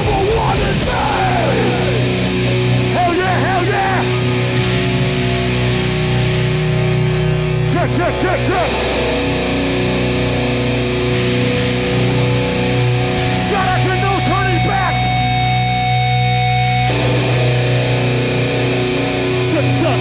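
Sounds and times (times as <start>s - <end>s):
person shouting: 0.0s - 2.2s, 2.9s - 4.2s, 13.2s - 15.2s
electric guitars ringing chords: 0.0s - 20.0s.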